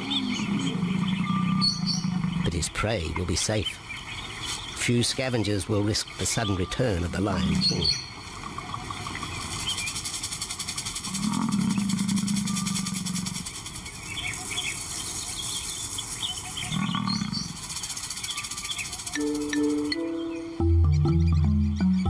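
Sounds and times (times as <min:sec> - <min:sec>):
lion growling: 0:00.0 - 0:02.8, 0:11.1 - 0:13.5, 0:16.6 - 0:17.6.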